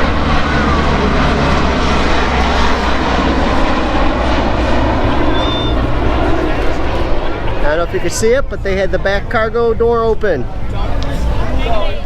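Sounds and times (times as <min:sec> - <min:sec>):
airplane engines running: 0:00.0 - 0:12.0.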